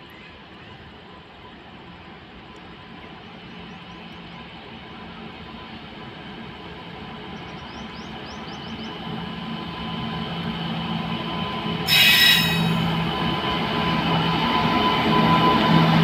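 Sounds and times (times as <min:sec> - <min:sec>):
electric locomotive humming: 0:00.3 - 0:16.0
shrill high-pitched sound: 0:11.9 - 0:12.9.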